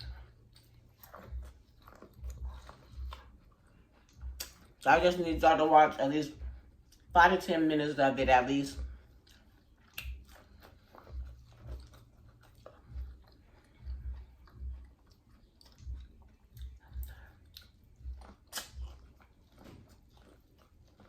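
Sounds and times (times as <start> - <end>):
close-up chewing with crunches: 0.0 - 21.0.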